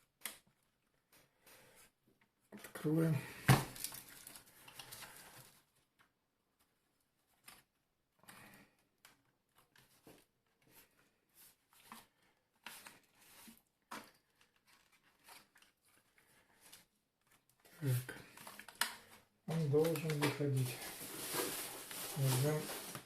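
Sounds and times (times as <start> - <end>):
plastic parts clicking and scraping: 11.8 - 23.0.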